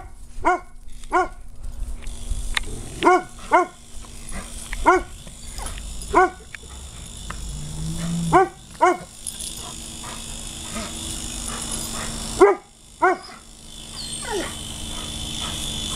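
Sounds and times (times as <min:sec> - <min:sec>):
dog barking: 0:00.0 - 0:01.4, 0:03.0 - 0:03.8, 0:04.4 - 0:07.2, 0:08.0 - 0:15.7
faint steady hum: 0:01.5 - 0:15.9.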